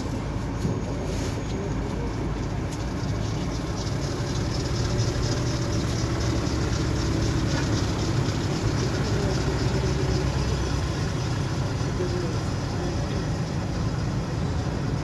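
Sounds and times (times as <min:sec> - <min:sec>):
tram wheels and motor rumble: 0:00.0 - 0:15.0.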